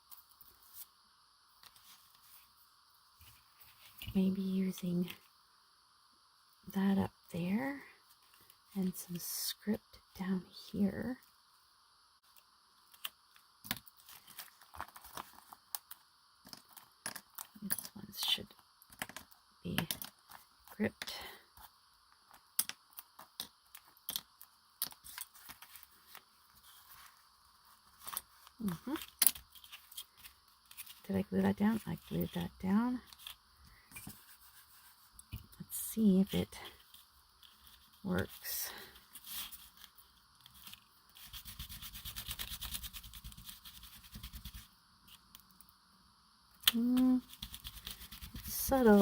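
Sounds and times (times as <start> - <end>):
paper rustling: 14.0 - 15.6
rubbing strokes on paper: 34.1 - 35.2, 41.2 - 44.7.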